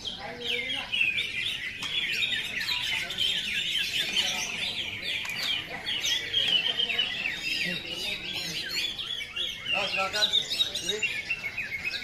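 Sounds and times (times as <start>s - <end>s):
birds chirping and whistling: 0.0s - 12.0s.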